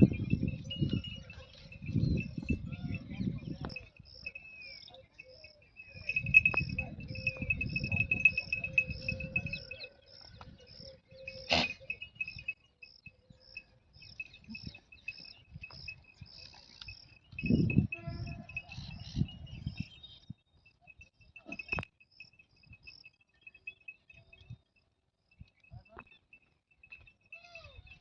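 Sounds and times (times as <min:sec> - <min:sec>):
steady high insect trill: 0:00.0 - 0:19.9, 0:20.6 - 0:28.0
insects chirping: 0:00.0 - 0:28.0.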